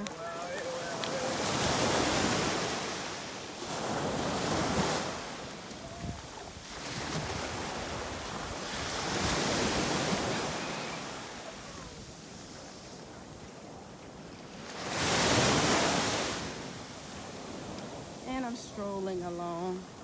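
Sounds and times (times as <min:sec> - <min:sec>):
wind buffeting microphone: 0:00.0 - 0:12.4
ocean waves breaking on beach: 0:00.0 - 0:20.0.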